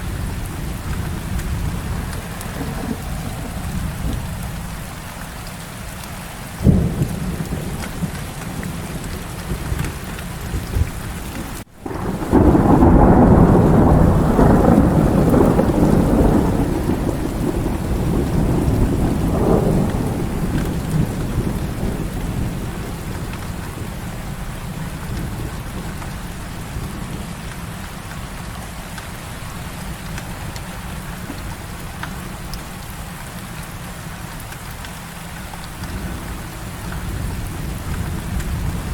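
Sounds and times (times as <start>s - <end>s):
rolling thunderclap: 0.0s - 5.1s, 6.6s - 26.2s, 35.6s - 38.9s
heavy rain falling: 0.0s - 38.9s.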